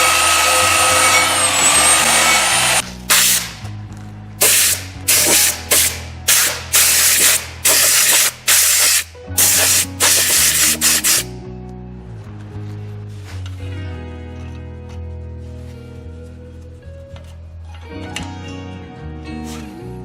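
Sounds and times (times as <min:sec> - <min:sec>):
whirring with thin whine: 0:00.0 - 0:02.8
background music: 0:00.0 - 0:20.0
short hissing sprays: 0:04.4 - 0:11.2.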